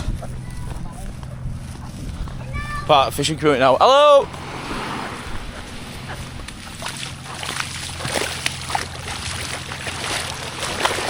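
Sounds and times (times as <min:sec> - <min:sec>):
steady low hum: 0:00.0 - 0:11.0
water sloshing and splashing: 0:04.1 - 0:11.0.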